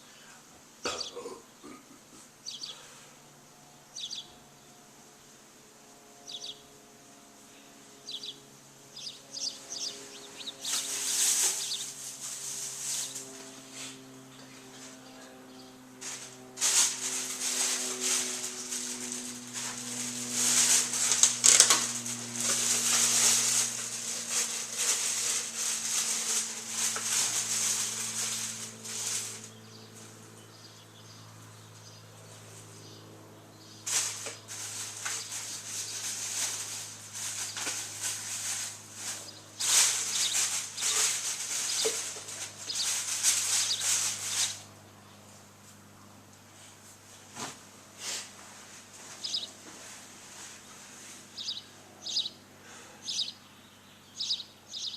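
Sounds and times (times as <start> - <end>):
steady low hum: 0.0 - 54.9
birds fluttering wings: 9.0 - 14.0, 16.0 - 30.2, 33.9 - 44.8, 48.9 - 49.6.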